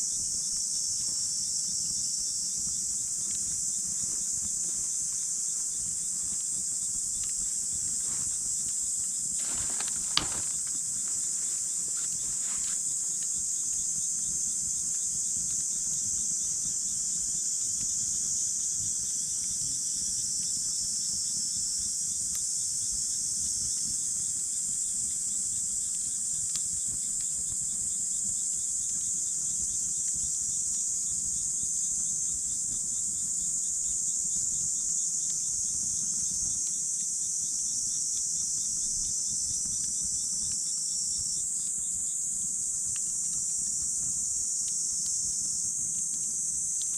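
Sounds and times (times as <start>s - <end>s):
crickets and insects chirping: 0.0s - 46.9s
campfire crackling: 0.1s - 46.9s
fire popping: 2.6s - 18.0s.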